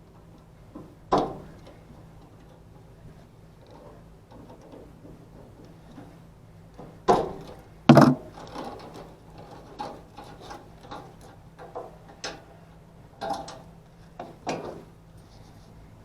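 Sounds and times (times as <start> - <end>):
hand tools clicking and knocking: 7.9 - 8.3.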